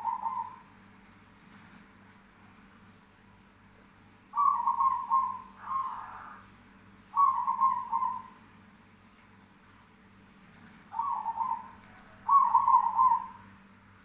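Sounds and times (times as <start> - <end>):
dove cooing: 0.0 - 0.8, 4.3 - 6.5, 7.1 - 8.4, 10.9 - 13.6.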